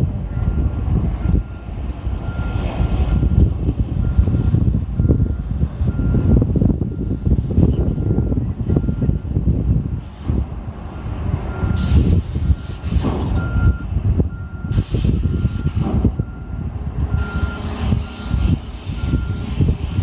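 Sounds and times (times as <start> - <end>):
diesel engine rumble: 0.0 - 20.0
backup alarm beeping: 4.0 - 7.3, 8.0 - 9.4, 13.4 - 19.9
air hisses: 17.4 - 20.0.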